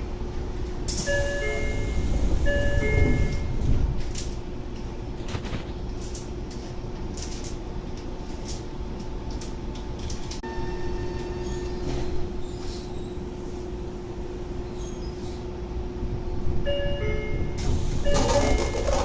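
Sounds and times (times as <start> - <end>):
stopped train humming: 0.0 - 5.2, 5.8 - 19.0
train doors closing rumble: 0.2 - 19.0
two-note door chime: 1.1 - 3.5.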